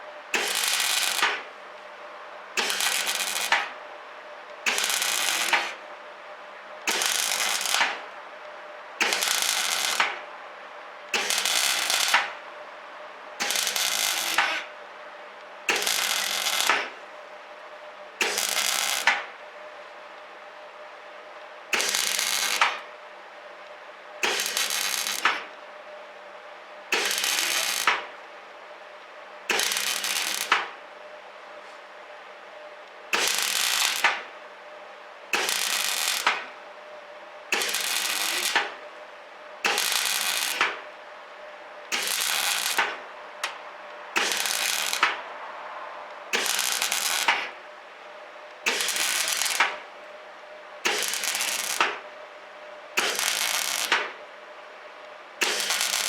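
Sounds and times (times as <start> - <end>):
welding arc sizzling and crackling: 0.3 - 1.5, 2.6 - 3.8, 4.6 - 5.8, 6.9 - 8.1, 9.0 - 10.2, 11.1 - 12.4, 13.4 - 14.7, 15.7 - 17.0, 18.2 - 19.3, 21.7 - 22.9, 24.2 - 25.5, 26.9 - 28.1, 29.5 - 30.8, 33.1 - 34.3, 35.3 - 36.6, 37.5 - 38.8, 39.6 - 41.0, 41.9 - 45.3, 46.0 - 47.6, 48.6 - 49.9, 50.8 - 52.1, 53.0 - 54.2, 55.4 - 56.0
welding machine hum: 0.3 - 1.6, 2.6 - 3.8, 4.6 - 5.8, 6.9 - 8.2, 9.0 - 10.3, 11.1 - 12.4, 13.4 - 14.7, 15.7 - 17.0, 18.2 - 19.2, 21.7 - 22.9, 24.2 - 25.6, 26.9 - 28.1, 29.5 - 30.8, 33.1 - 34.3, 35.3 - 36.6, 37.5 - 38.9, 39.6 - 41.0, 41.8 - 45.3, 46.0 - 47.6, 48.6 - 49.9, 50.8 - 52.1, 53.0 - 54.2, 55.4 - 56.0.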